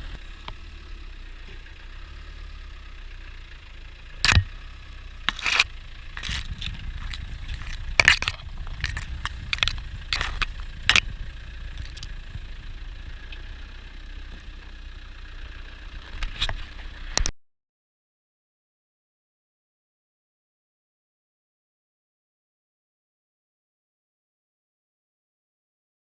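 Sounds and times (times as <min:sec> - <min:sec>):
car engine rumbling: 0:00.0 - 0:17.3
sharp cracks and scrapes: 0:04.2 - 0:04.5, 0:05.2 - 0:12.5, 0:16.0 - 0:17.4.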